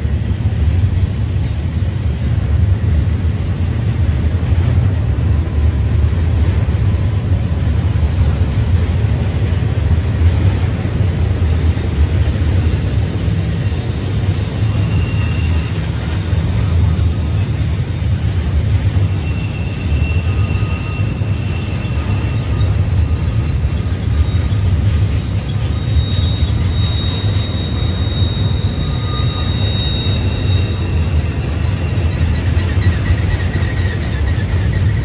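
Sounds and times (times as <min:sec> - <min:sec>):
freight train wheels rumbling: 0:00.0 - 0:35.0
high-pitched wheel squeal: 0:13.3 - 0:35.0.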